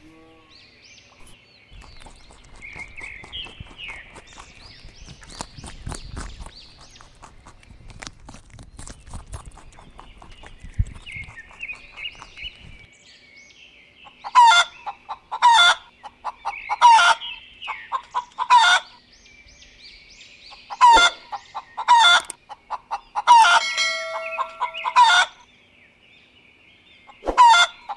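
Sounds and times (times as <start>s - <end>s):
small birds chirping: 0.0s - 27.9s
chicken-like bird calling: 14.3s - 17.2s, 20.7s - 25.4s, 27.2s - 27.9s.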